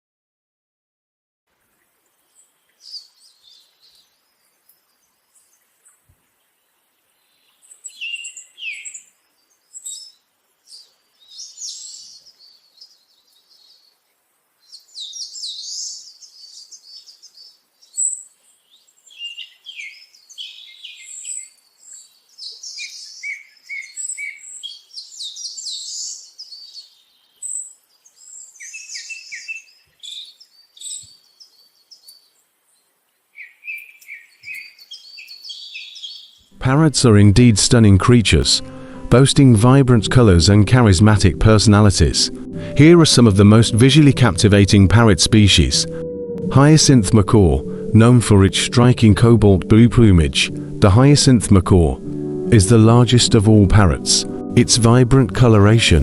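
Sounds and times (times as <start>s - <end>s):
birds singing and chirping: 2.3s - 5.6s, 7.2s - 14.0s, 14.6s - 32.4s, 33.4s - 36.5s.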